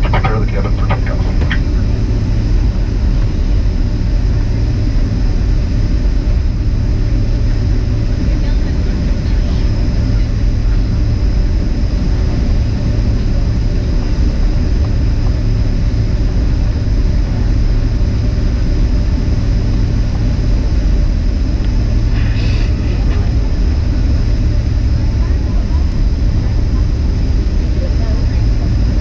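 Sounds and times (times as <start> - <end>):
faint high whine: 0.0 - 16.8
jet engine cabin rumble: 0.0 - 29.0.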